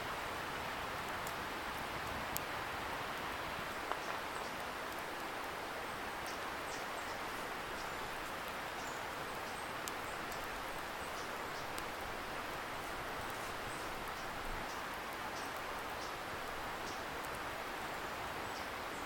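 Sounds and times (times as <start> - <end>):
campfire crackling: 0.0 - 19.0.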